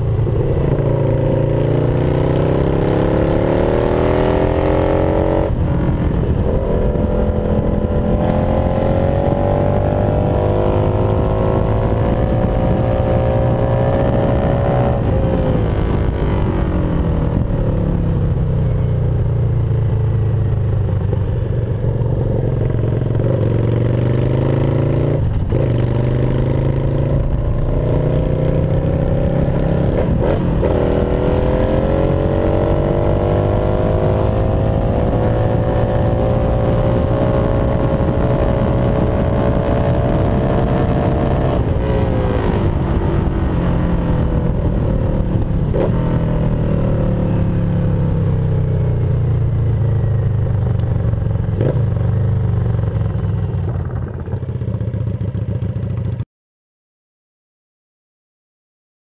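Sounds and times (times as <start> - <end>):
motorcycle engine revving through gears: 0.0 - 56.2.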